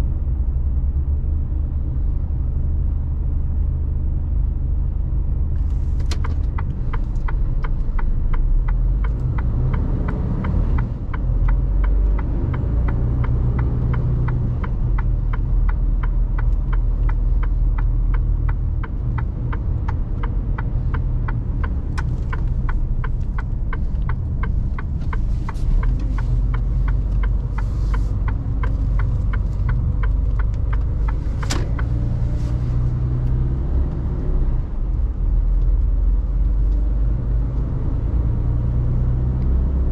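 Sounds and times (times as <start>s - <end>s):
diesel truck engine rumbling: 0.0s - 39.9s
rapid ticking: 10.8s - 32.0s.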